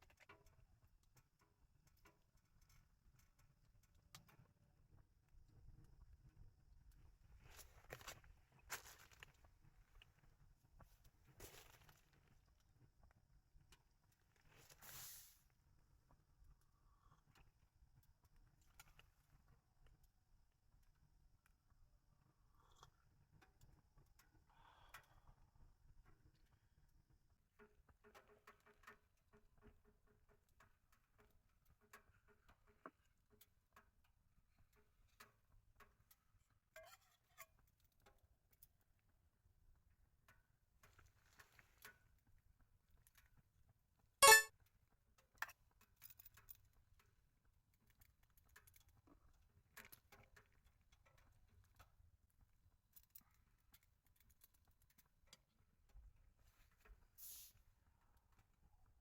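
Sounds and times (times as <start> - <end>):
bright clink: 44.2 - 44.5.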